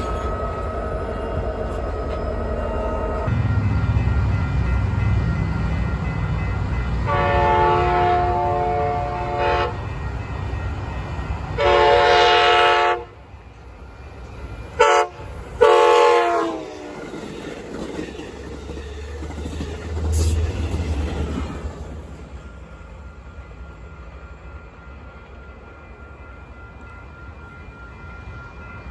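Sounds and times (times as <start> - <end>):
passing train rumble: 0.0 - 28.9
locomotive air horn: 7.0 - 9.9, 11.6 - 13.2, 14.8 - 16.7.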